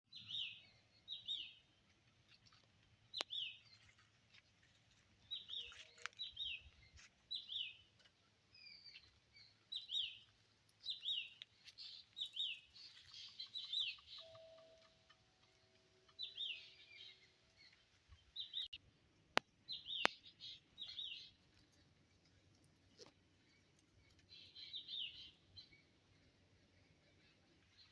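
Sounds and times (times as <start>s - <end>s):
bird chirping: 0.1s - 18.8s, 19.4s - 21.8s, 22.8s - 27.9s.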